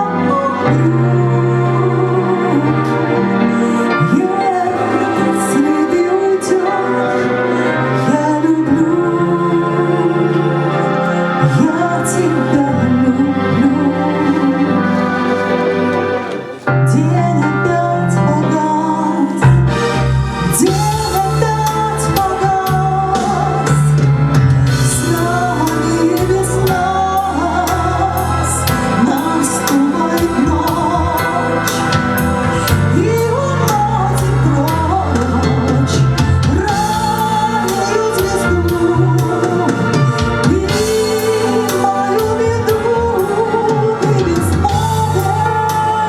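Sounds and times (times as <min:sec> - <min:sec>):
woman singing pop ballad: 0:20.6 - 0:24.1, 0:24.7 - 0:46.0
drums and cymbals: 0:34.2 - 0:45.8.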